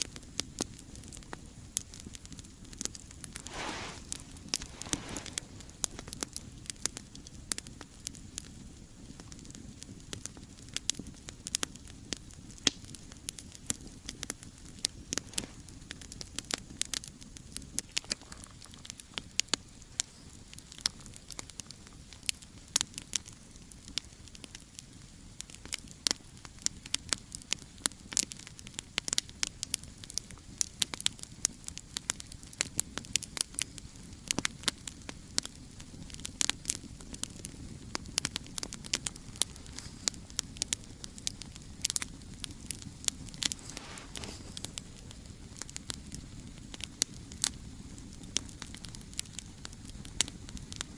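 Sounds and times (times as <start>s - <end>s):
campfire crackling and popping: 0.0s - 50.9s
low rush of burning: 0.0s - 50.9s.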